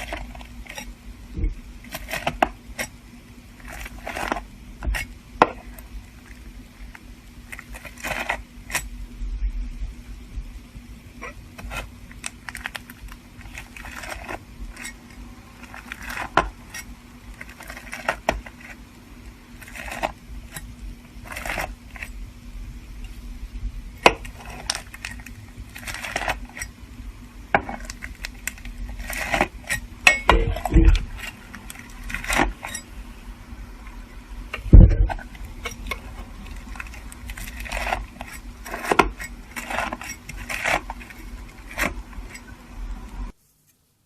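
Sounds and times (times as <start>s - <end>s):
knife crunching through slime: 7.5s - 8.9s, 11.6s - 18.8s, 19.5s - 22.1s, 24.0s - 26.7s, 27.6s - 29.9s, 35.2s - 42.4s.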